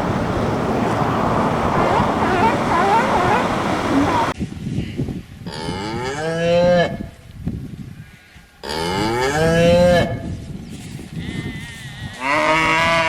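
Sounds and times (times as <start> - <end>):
cow mooing: 0.0 - 4.3.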